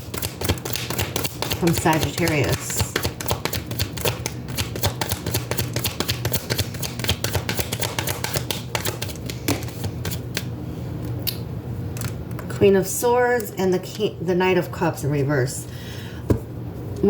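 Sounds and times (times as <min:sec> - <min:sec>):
cards being shuffled: 0:00.0 - 0:10.5.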